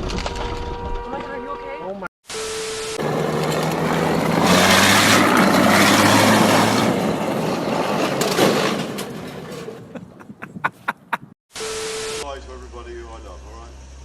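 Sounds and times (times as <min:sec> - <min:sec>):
vehicle engine running: 0:03.0 - 0:07.7
road and wind noise: 0:03.0 - 0:11.4.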